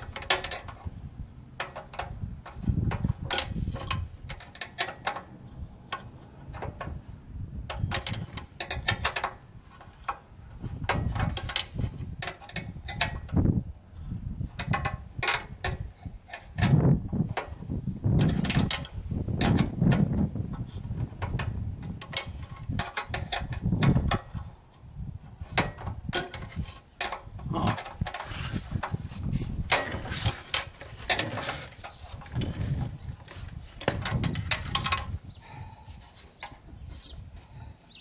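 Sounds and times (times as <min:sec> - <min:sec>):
hand tools clanking against metal: 0:10.9 - 0:13.4, 0:25.6 - 0:29.0, 0:29.6 - 0:37.6
knocks and handling rumbles: 0:25.3 - 0:37.6.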